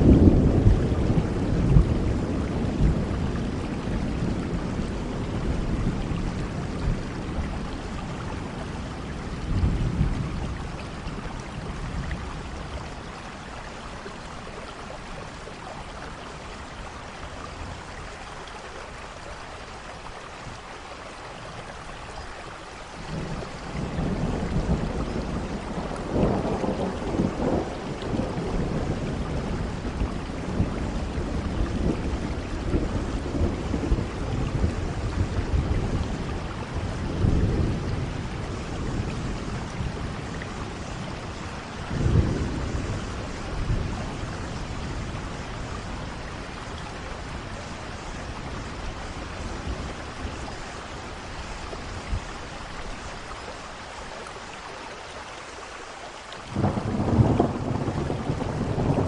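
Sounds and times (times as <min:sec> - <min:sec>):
rolling thunder: 0:00.0 - 0:13.3, 0:23.0 - 0:53.1, 0:56.5 - 0:59.0
steady rain: 0:00.0 - 0:59.0.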